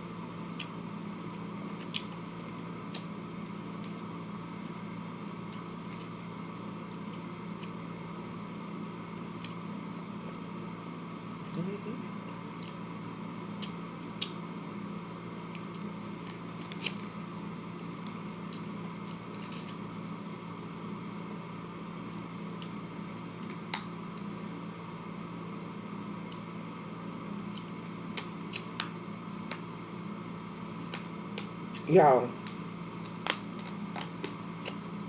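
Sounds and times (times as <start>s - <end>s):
steady electrical hum: 0.0s - 35.0s
chewing with wet squishes: 0.5s - 3.2s, 12.5s - 14.4s, 15.4s - 21.1s, 27.4s - 29.7s.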